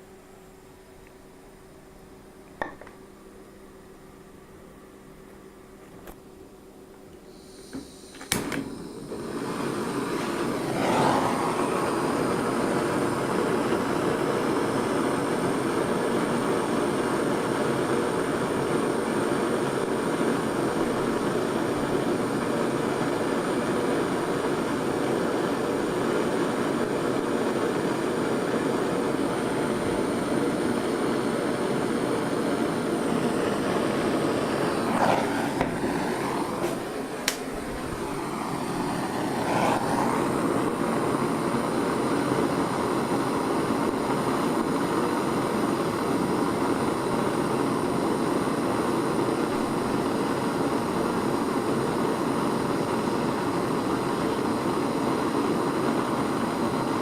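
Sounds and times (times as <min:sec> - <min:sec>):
torch click: 0:07.1 - 0:12.7, 0:33.1 - 0:41.4
gas torch roaring hiss: 0:07.1 - 0:57.0.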